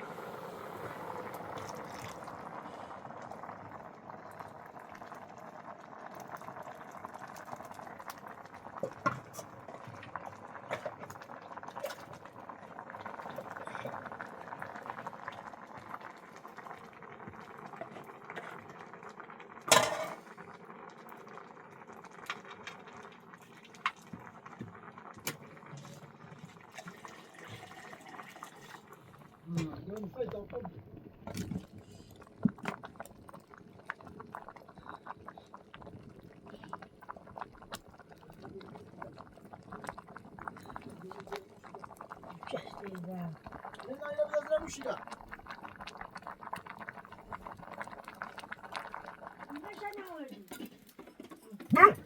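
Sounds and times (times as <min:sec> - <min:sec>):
liquid boiling in a pot: 0:00.0 - 0:52.0.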